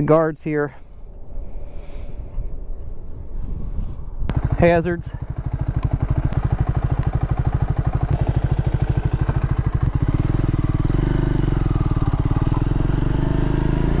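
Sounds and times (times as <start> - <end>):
motorcycle engine idling and revving: 4.3 - 14.0.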